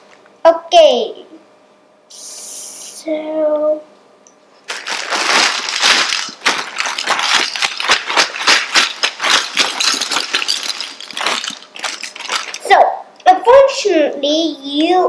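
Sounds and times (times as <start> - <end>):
plastic bag crinkling: 4.7 - 12.8.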